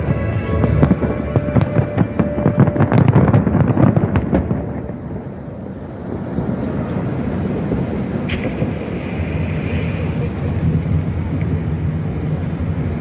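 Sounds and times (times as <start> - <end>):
firework sharp crack: 0.0 - 5.3, 6.2 - 10.8
distant fireworks rumble: 0.0 - 13.0.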